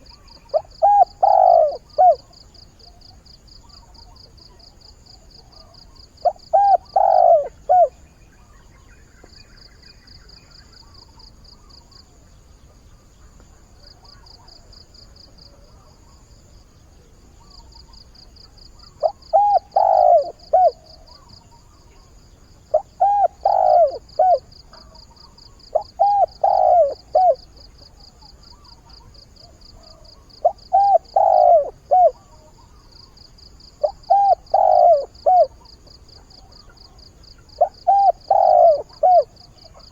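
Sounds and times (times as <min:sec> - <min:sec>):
dove cooing: 0:00.0 - 0:03.1, 0:05.4 - 0:08.0, 0:18.7 - 0:33.0, 0:33.7 - 0:39.9.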